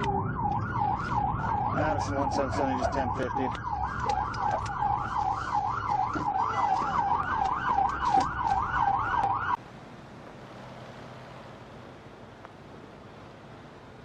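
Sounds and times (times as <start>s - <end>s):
emergency siren yelping: 0.0s - 9.6s
wind or road noise hiss: 9.6s - 14.0s.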